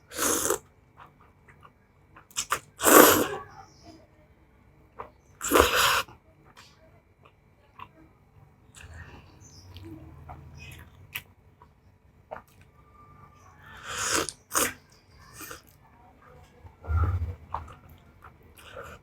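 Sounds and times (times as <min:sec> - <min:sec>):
slurping noodles: 0:00.0 - 0:00.6, 0:02.3 - 0:03.4, 0:05.4 - 0:06.1, 0:13.8 - 0:15.6.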